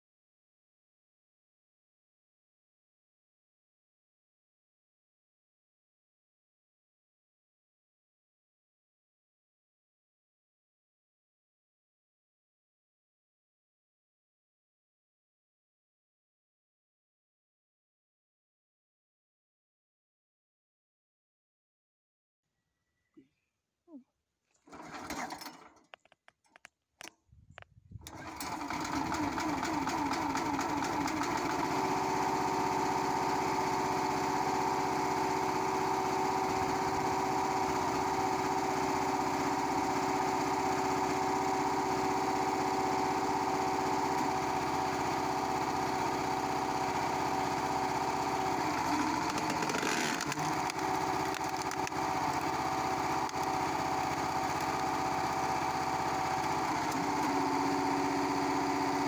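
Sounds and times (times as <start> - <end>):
small engine running: 24.7 - 25.6, 28.0 - 59.0.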